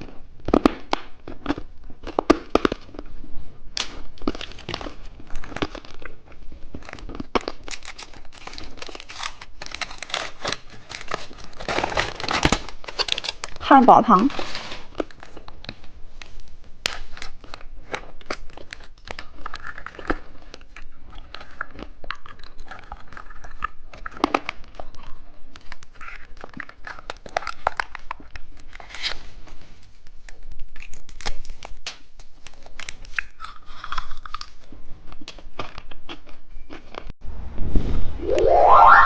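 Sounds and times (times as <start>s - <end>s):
plastic packaging crinkling: 3.8s - 13.6s.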